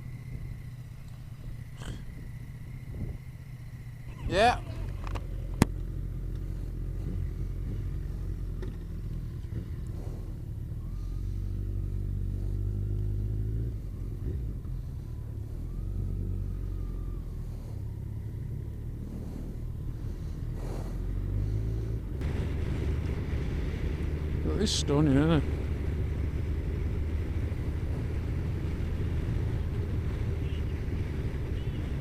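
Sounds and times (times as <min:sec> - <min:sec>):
motorcycle engine running: 0:00.0 - 0:32.0
wind noise: 0:01.4 - 0:03.4.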